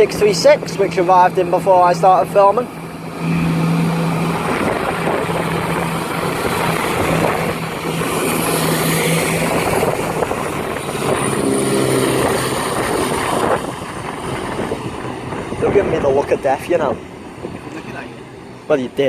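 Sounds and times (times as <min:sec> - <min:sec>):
diesel train engines humming: 0:00.0 - 0:19.0.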